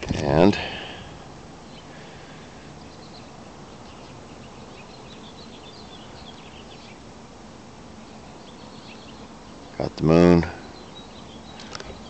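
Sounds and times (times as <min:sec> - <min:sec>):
low outdoor background hum: 0:00.0 - 0:12.0
small birds chirping: 0:00.0 - 0:12.0.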